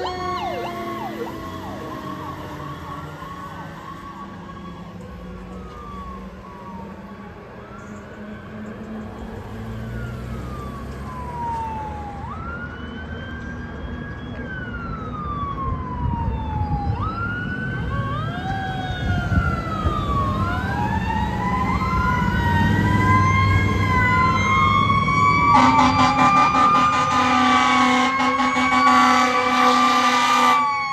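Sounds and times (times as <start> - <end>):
fire engine sirens wailing: 0.0 - 30.9
steady horn blast: 25.5 - 30.6.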